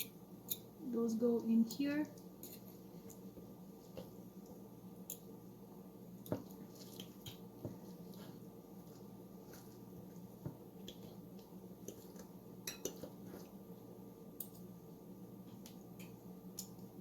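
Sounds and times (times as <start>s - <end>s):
forks clicking against a dish: 0.0s - 0.7s
steady low hum: 0.0s - 17.0s
soft wet squishes: 6.1s - 13.8s.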